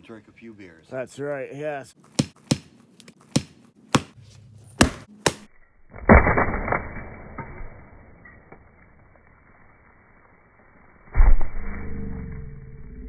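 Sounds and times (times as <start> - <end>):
sharp knocks: 2.1 - 5.5.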